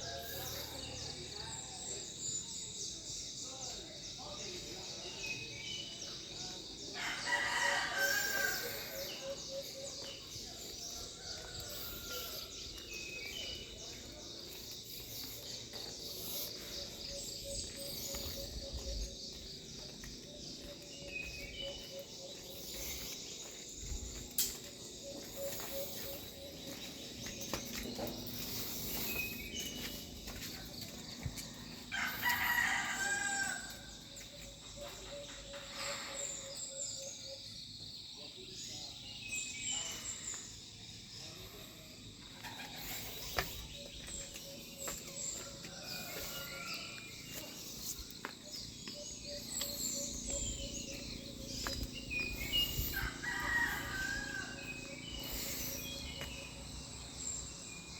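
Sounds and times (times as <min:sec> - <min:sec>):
rooster crowing: 0:07.0 - 0:09.2, 0:31.9 - 0:33.9, 0:52.5 - 0:54.9.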